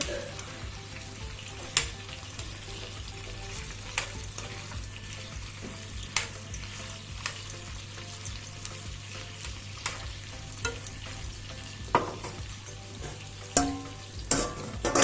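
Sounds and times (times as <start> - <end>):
food sizzling in a pan: 0.0 - 15.0
utensil clinking against pan: 3.5 - 4.7, 5.6 - 8.8, 9.8 - 15.0.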